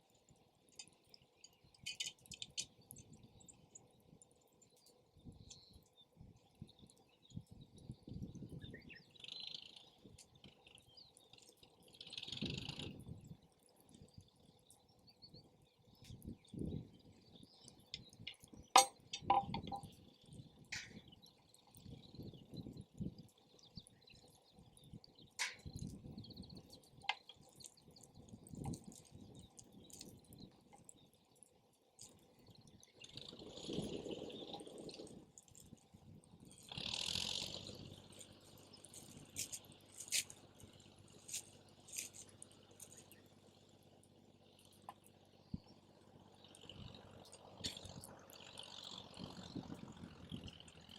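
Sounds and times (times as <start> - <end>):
campfire crackling and popping: 0.0 - 9.2, 9.9 - 44.1
wind buffeting microphone: 5.2 - 9.0, 16.0 - 18.6, 24.6 - 26.8, 27.8 - 30.6, 32.5 - 36.7, 49.0 - 50.8
sharp pops from fire: 20.7 - 21.1, 25.4 - 26.1.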